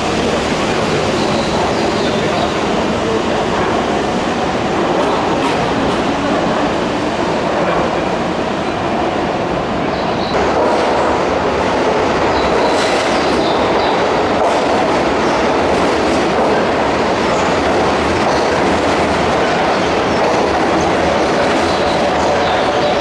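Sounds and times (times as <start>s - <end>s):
electric train rumbling: 0.0s - 23.0s
wheels clicking over rail joints: 4.9s - 7.1s.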